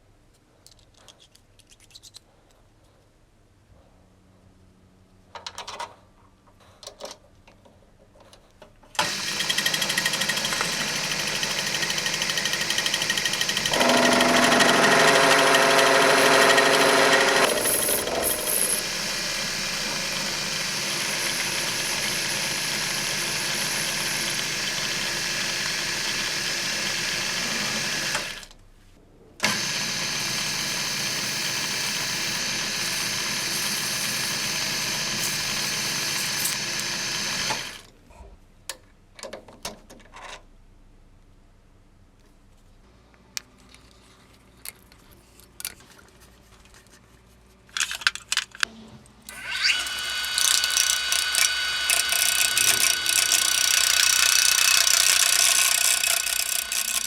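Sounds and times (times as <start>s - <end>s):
power tool running with whine: 9.0s - 28.5s, 29.4s - 37.9s, 49.3s - 57.0s.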